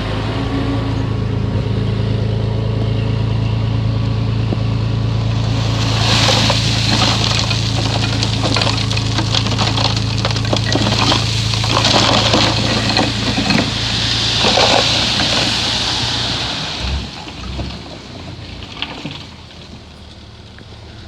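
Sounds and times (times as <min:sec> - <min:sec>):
bulldozer diesel engine: 0:00.0 - 0:21.0
tracks crackling and clanking: 0:04.4 - 0:20.7.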